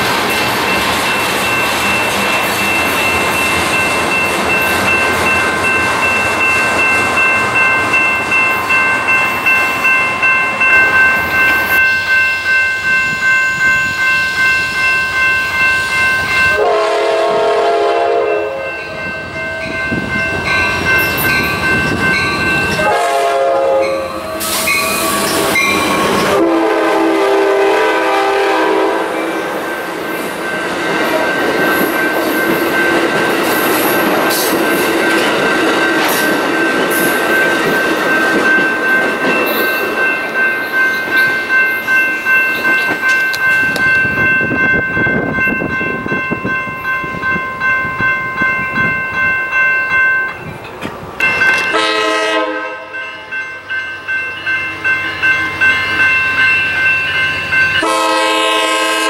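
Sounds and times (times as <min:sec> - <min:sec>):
crossing bell ringing: 0:00.0 - 0:59.0
passenger train rolling by: 0:00.0 - 0:59.0
train horn blasts: 0:16.5 - 0:18.9, 0:22.7 - 0:25.0, 0:26.2 - 0:29.3, 0:51.6 - 0:53.0, 0:57.8 - 0:59.0
freight train wheel clatter: 0:29.9 - 0:46.2, 0:50.2 - 0:51.9.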